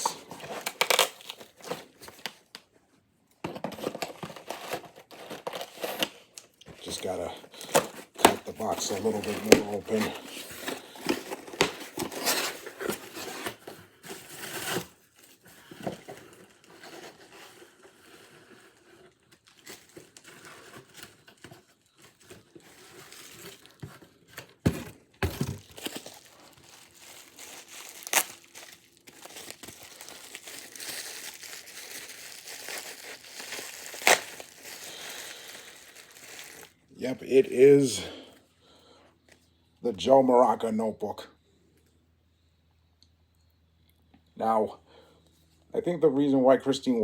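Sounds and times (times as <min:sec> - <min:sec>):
packaging crinkling: 0:00.0 - 0:02.7, 0:03.7 - 0:36.8.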